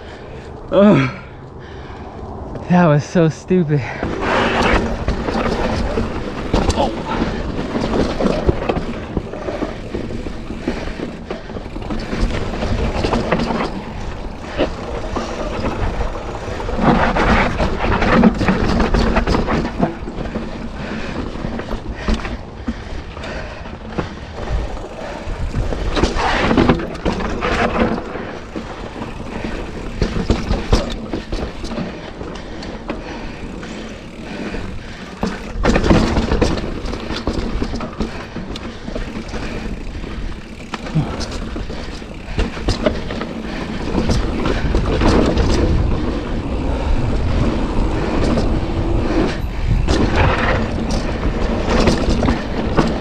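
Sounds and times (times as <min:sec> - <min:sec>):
bike clattering: 0:03.8 - 0:53.0
tyres crunching over stones: 0:03.9 - 0:22.3.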